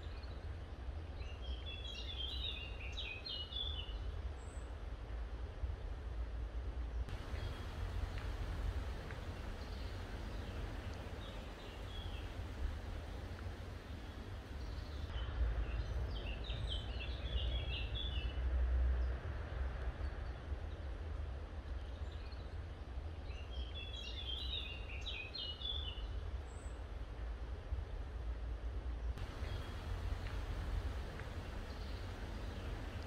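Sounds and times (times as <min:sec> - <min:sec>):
birds chirping: 0:07.1 - 0:15.1, 0:29.2 - 0:33.0
steady low rumble: 0:07.1 - 0:16.2, 0:29.2 - 0:33.0.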